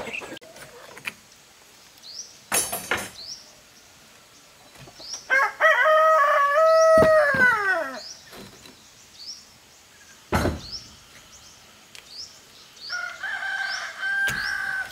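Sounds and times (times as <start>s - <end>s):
rooster crowing: 5.3s - 8.0s, 12.9s - 14.9s.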